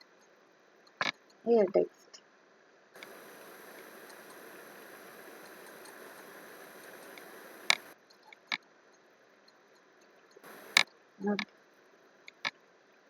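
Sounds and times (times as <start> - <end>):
background hiss with faint ticks: 0.0 - 13.0
sharp clicks: 3.0 - 8.0, 10.4 - 10.9.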